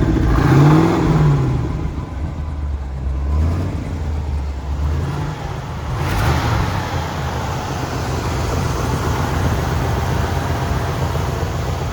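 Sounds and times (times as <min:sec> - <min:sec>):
car engine running: 0:00.0 - 0:11.9
broad rushing noise: 0:05.0 - 0:11.9.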